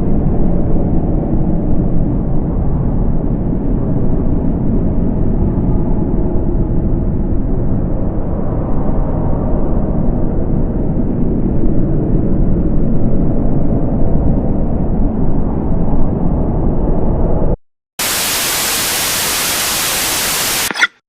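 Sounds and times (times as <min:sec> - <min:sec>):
static hiss: 0:18.0 - 0:21.0.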